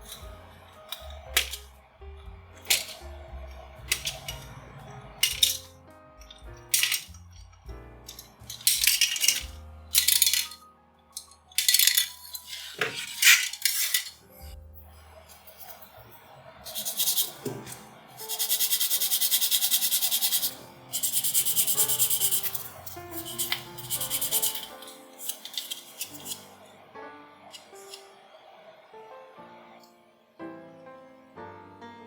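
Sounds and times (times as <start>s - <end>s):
soft background music: 0.0s - 32.0s
sanding plastic by hand: 16.7s - 17.5s, 18.2s - 26.4s.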